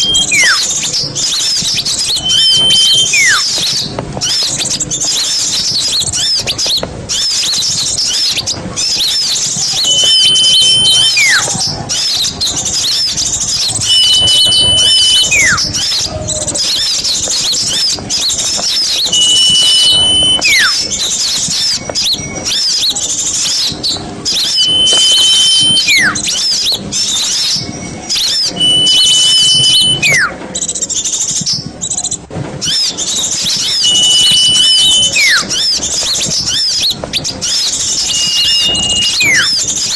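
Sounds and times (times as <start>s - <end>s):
steady high whistle: 0.0s - 3.8s, 9.0s - 16.1s, 16.8s - 23.7s, 24.3s - 30.4s, 33.0s - 36.9s, 37.5s - 39.9s
quick falling whistle: 0.0s - 4.4s, 8.9s - 18.0s, 18.6s - 23.7s, 24.3s - 30.4s, 32.6s - 39.9s
small birds chirping: 0.0s - 39.9s.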